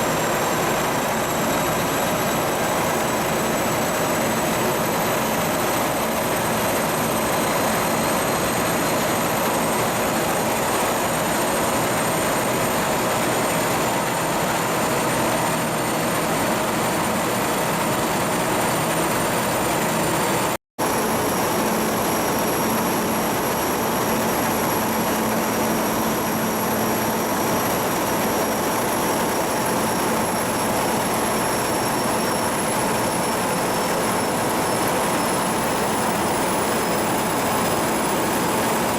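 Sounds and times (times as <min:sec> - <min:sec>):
ship diesel engine running: 0:19.3 - 0:38.9
high-pitched whine: 0:20.8 - 0:38.9.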